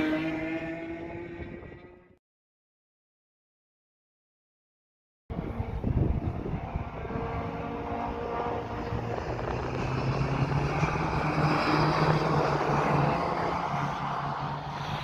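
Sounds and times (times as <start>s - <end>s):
vehicle engine drone: 0.0s - 2.2s, 5.3s - 15.0s
wind noise on microphone: 0.1s - 2.1s, 5.3s - 15.0s.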